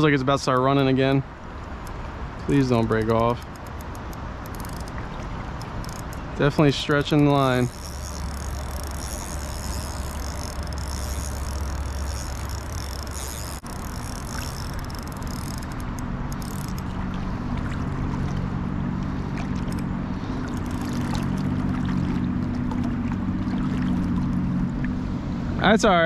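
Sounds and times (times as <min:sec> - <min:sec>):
low steady hum: 0:00.0 - 0:25.6
high insect buzz: 0:07.2 - 0:16.8.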